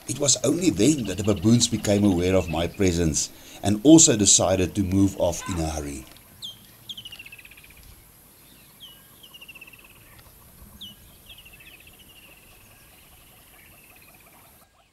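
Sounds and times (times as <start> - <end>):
bird call with falling trill: 0.0 - 3.4.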